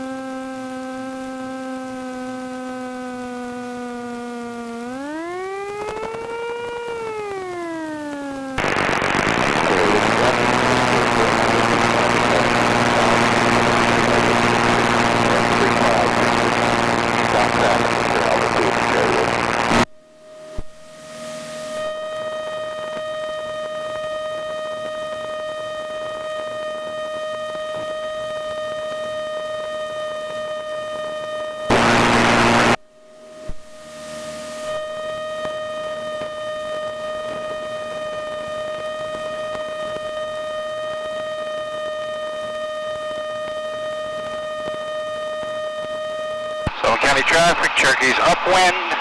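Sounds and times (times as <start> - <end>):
light aircraft engine droning: 0.0 - 48.2
radio static burst: 8.3 - 19.9, 31.7 - 32.8, 46.7 - 49.0.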